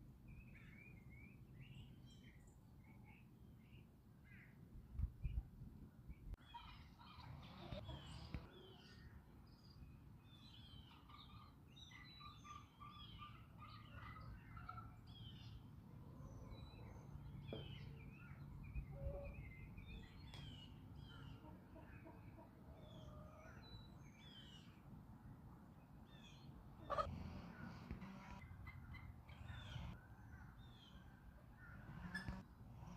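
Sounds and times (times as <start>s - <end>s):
small birds chirping: 6.1s - 24.8s, 25.9s - 32.9s.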